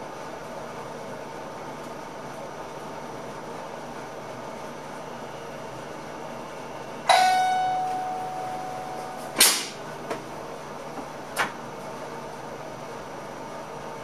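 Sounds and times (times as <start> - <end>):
bell stroke ringing: 7.1 - 9.4
sharp clack: 9.4 - 9.8.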